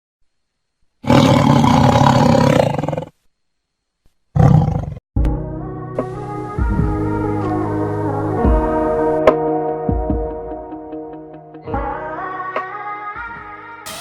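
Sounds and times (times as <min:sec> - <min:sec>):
music with sustained tones: 0:05.3 - 0:12.6.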